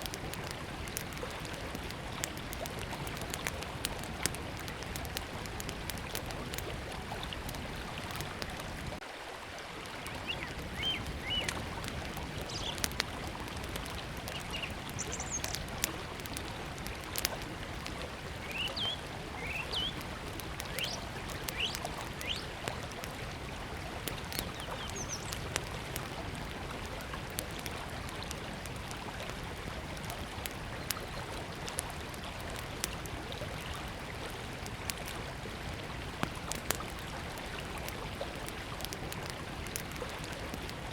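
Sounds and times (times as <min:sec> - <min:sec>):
wood fire crackling: 0:00.0 - 0:09.0, 0:09.6 - 0:40.9
river flowing: 0:00.0 - 0:40.9
small birds chirping: 0:10.1 - 0:11.6, 0:12.3 - 0:13.0, 0:13.8 - 0:15.8, 0:18.4 - 0:20.0, 0:20.6 - 0:22.6, 0:24.3 - 0:25.7.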